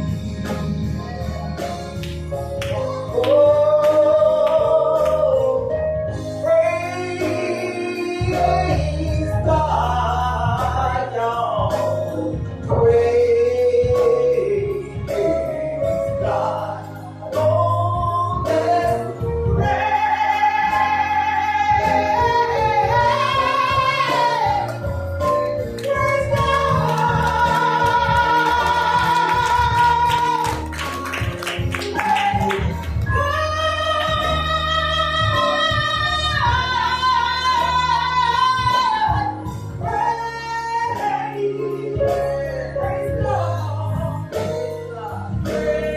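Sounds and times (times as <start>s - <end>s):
instrumental accompaniment: 0.0s - 45.9s
person singing: 2.6s - 30.8s, 31.7s - 45.9s.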